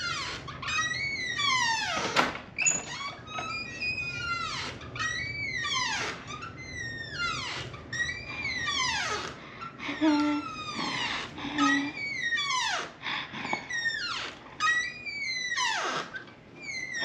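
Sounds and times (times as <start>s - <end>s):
door hinge squeaking: 0.0s - 13.0s, 13.6s - 17.0s.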